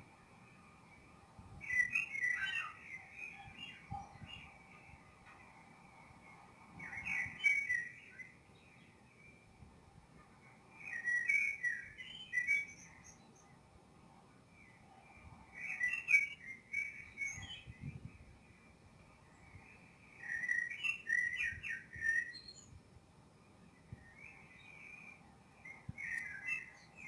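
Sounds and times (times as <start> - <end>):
songbirds warbling: 0.9 - 9.4, 14.6 - 22.8, 23.8 - 27.0.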